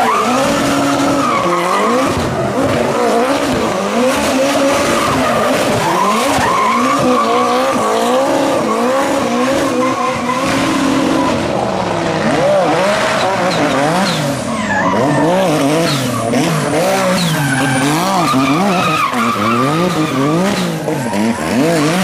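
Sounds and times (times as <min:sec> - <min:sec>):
race car engine revving: 0:00.0 - 0:22.0
tyres squealing: 0:02.9 - 0:11.3, 0:13.0 - 0:22.0.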